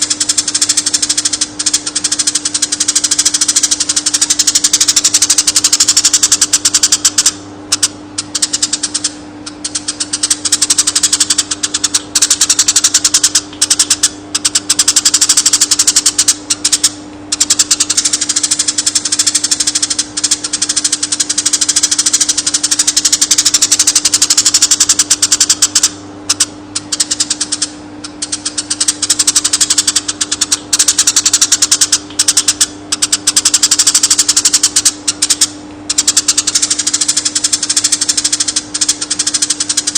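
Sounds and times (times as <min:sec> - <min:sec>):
steady low hum: 0:00.0 - 0:39.9
sparrow chirping chatter: 0:21.8 - 0:39.9.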